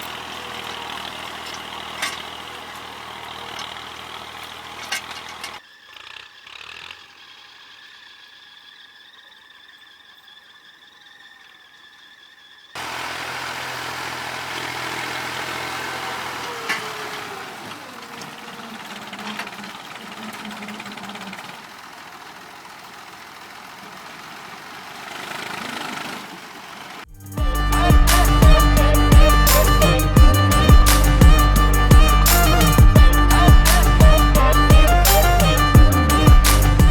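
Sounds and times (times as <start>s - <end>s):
working noise: 0.0s - 5.6s, 12.8s - 36.9s
tractor engine running: 0.0s - 7.8s, 12.8s - 36.9s.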